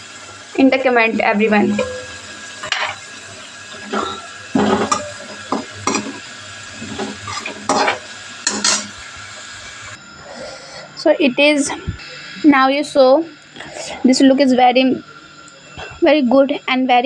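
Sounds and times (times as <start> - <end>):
oil sizzling: 0.0 - 10.0
metal utensil scraping pan: 3.8 - 6.2, 6.8 - 9.0.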